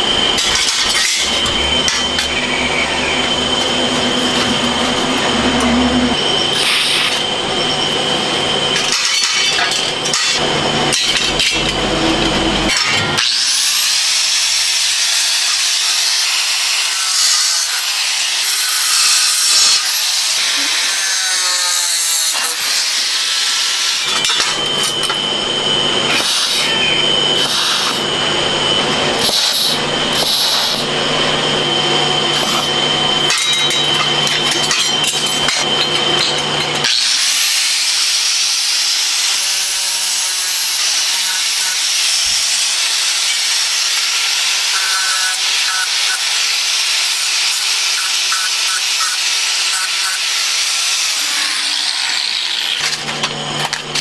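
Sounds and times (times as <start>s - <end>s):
high-pitched cutting with whistling: 0.0s - 12.7s
power tool humming and whining: 0.0s - 54.0s.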